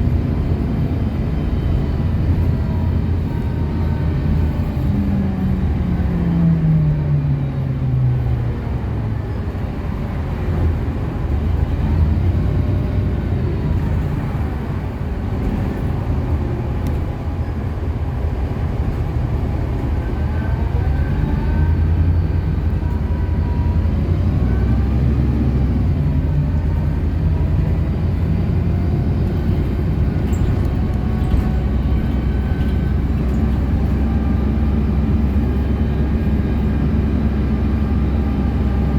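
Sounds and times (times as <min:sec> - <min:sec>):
bus engine humming: 0:00.0 - 0:38.9.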